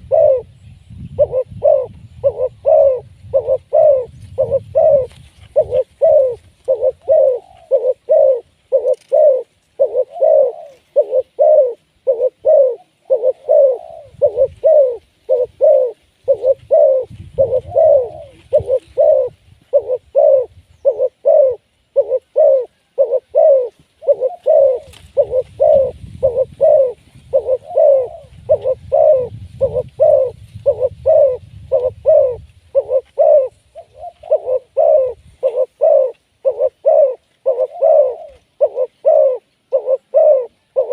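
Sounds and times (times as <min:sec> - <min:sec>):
dove cooing: 0:00.0 - 0:40.9.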